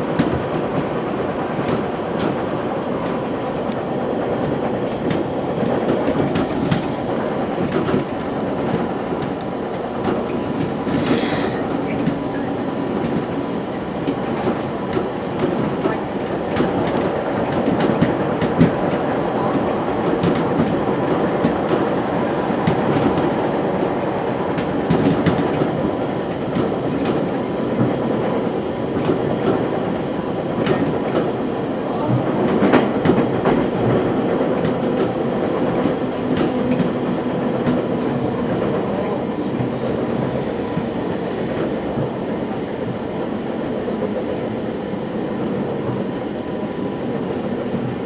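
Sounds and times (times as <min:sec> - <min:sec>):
train rumble: 0:00.0 - 0:48.0.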